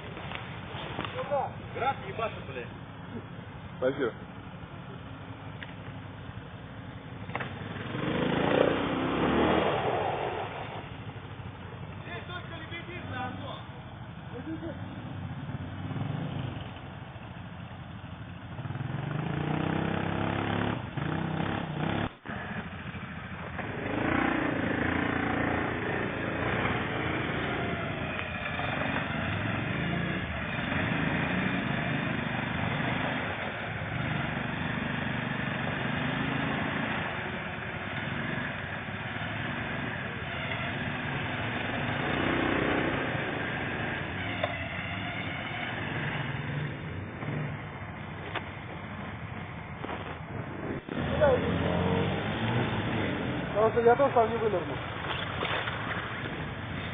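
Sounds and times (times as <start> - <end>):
quad bike engine revving: 7.2 - 11.2, 14.4 - 16.7, 18.6 - 48.7, 49.8 - 56.9.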